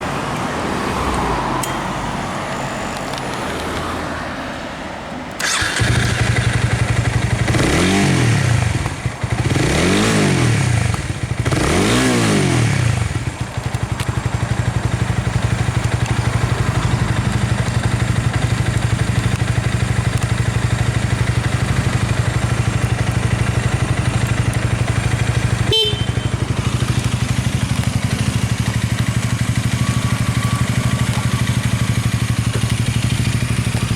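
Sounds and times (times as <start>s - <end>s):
sharp click: 1.1s - 1.8s
motorcycle engine revving and idling: 5.4s - 33.9s.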